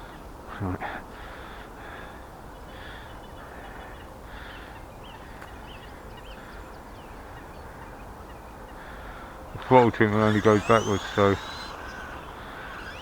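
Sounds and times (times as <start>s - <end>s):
crows cawing: 1.1s - 5.4s, 8.7s - 13.0s
small bird chirping: 9.5s - 13.0s.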